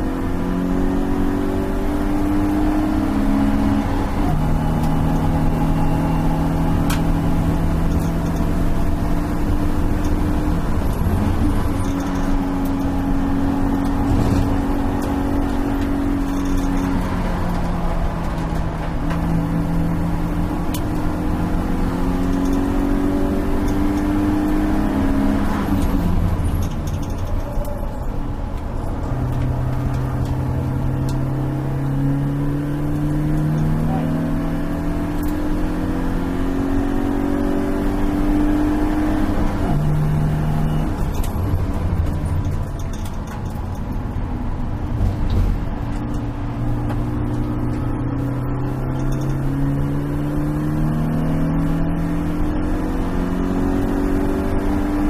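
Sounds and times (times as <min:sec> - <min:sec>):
race car engine revving: 0:00.0 - 0:27.4, 0:28.9 - 0:43.5, 0:44.5 - 0:55.0
road noise rumble: 0:00.0 - 0:55.0.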